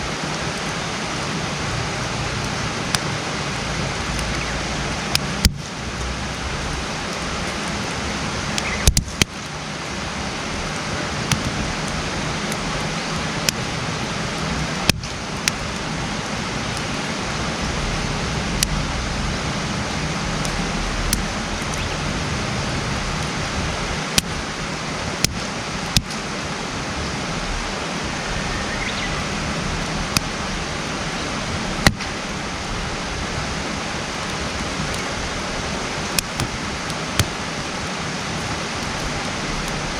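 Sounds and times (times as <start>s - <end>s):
campfire pops and crackles: 1.9s - 9.7s, 10.4s - 15.9s, 20.3s - 22.3s, 23.2s - 24.5s, 25.2s - 26.2s, 31.5s - 39.9s
fire hissing: 30.2s - 39.9s.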